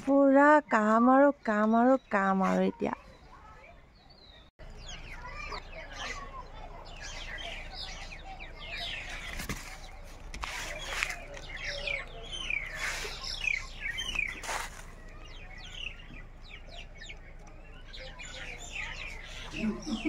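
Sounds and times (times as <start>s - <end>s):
small birds chirping: 0.0s - 20.0s
leaves rustling: 8.8s - 15.8s.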